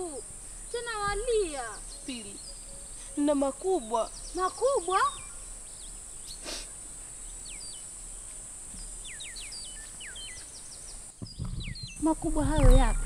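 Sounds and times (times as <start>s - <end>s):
high-pitched insect drone: 0.0s - 10.8s
birds whistling: 0.0s - 13.0s
soft rustle: 0.0s - 13.0s.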